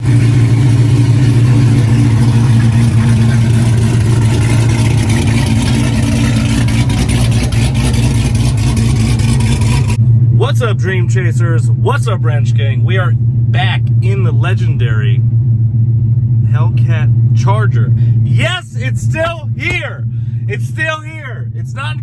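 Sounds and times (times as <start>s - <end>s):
car engine running steadily: 0.0s - 22.0s.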